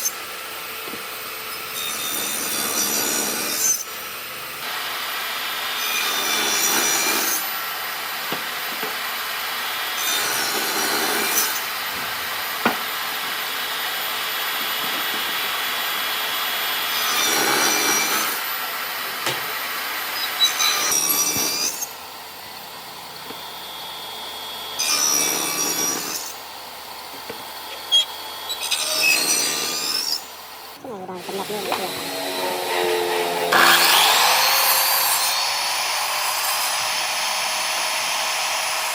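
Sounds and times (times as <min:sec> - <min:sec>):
saw cutting wood: 0:00.0 - 0:38.9.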